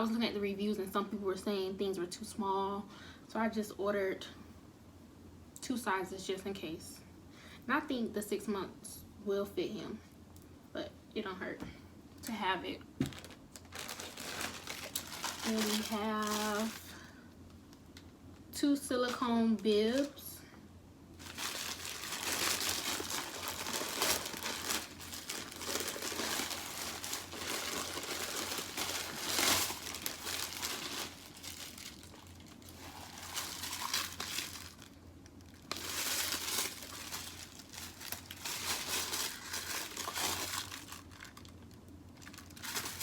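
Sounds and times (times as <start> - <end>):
plastic tearing: 13.0 - 16.9, 21.2 - 43.0
plastic packaging crumpling: 13.0 - 17.1, 21.2 - 43.0.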